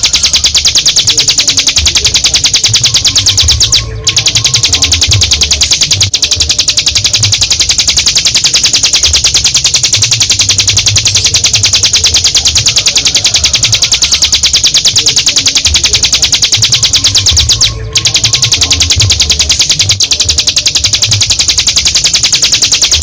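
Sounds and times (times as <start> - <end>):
bird singing a rapid trill: 0.0 - 23.0.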